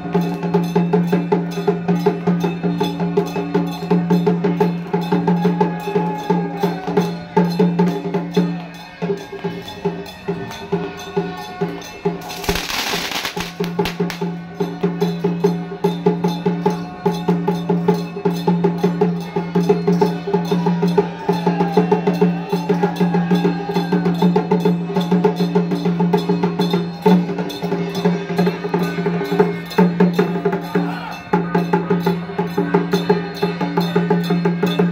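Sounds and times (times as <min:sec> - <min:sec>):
drum strokes: 0:07.0 - 0:16.6.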